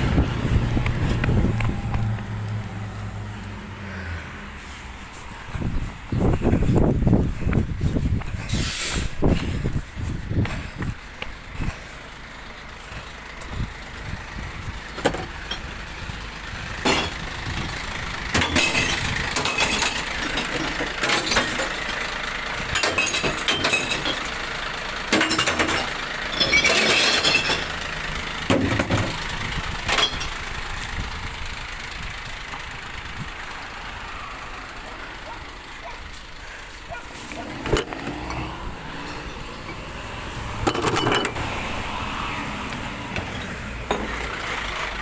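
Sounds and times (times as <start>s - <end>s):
recycling truck running: 0.0s - 45.0s
glass bottles crashing: 18.4s - 20.1s, 25.2s - 27.8s.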